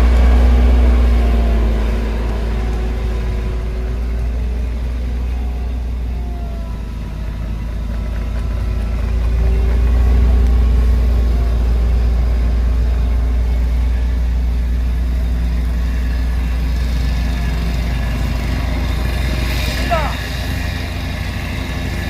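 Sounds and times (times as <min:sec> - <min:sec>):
road roller diesel engine rumbling: 0:00.0 - 0:22.0.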